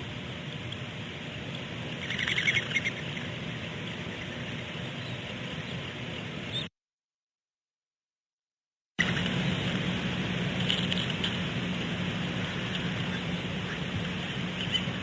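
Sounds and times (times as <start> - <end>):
low background rumble: 0.0 - 6.7, 9.0 - 15.0
rapid chittering bird call: 1.2 - 6.7, 12.4 - 15.0.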